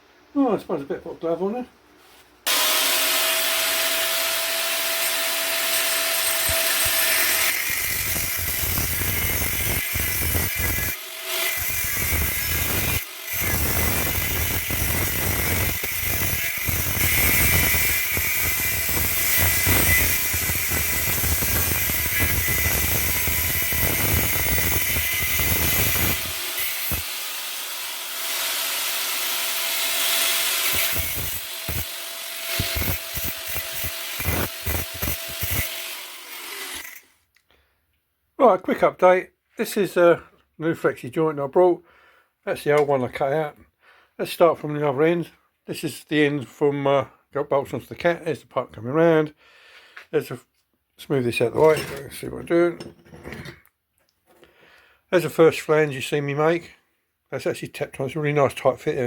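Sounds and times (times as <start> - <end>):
power tool working steel: 2.5 - 37.1.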